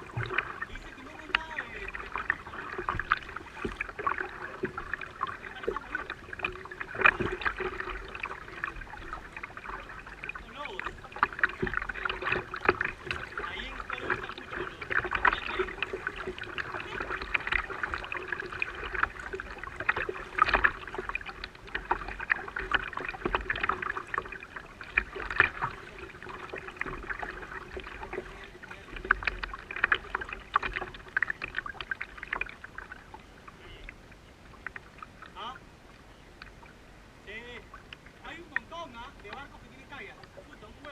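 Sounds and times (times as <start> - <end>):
faint steady hum: 0.0 - 40.9
water splashing around kayak: 0.0 - 40.9.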